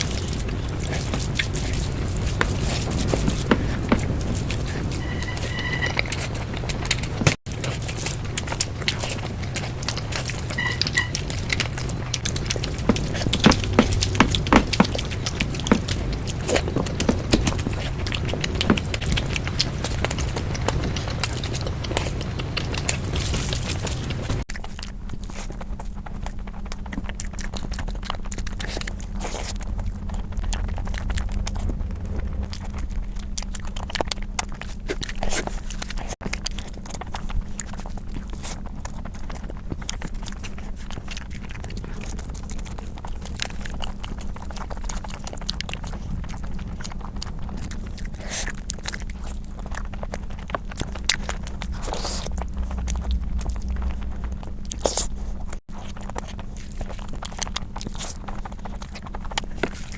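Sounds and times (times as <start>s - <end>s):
faint low hum: 0.0s - 59.9s
person chewing food: 0.0s - 59.9s.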